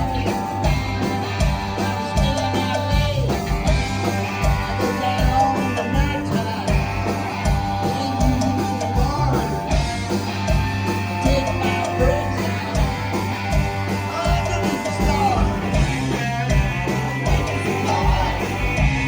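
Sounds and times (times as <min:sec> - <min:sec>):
person singing: 0:00.0 - 0:03.8, 0:04.6 - 0:09.8, 0:11.1 - 0:12.9, 0:17.2 - 0:19.0
rock band playing: 0:00.0 - 0:19.0.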